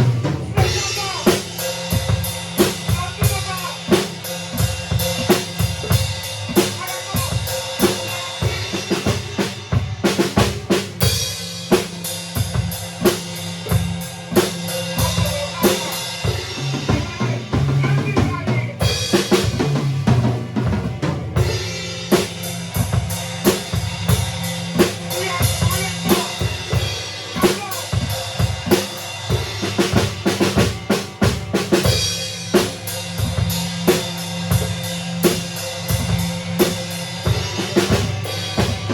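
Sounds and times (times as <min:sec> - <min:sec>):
cymbals: 0:00.0 - 0:38.9
drum kit beat: 0:00.0 - 0:38.9
bass line: 0:12.9 - 0:38.9.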